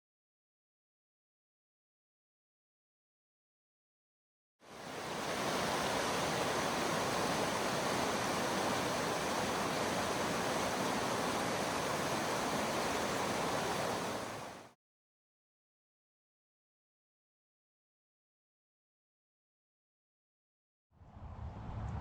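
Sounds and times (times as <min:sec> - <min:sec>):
river water flowing: 0:04.6 - 0:14.8.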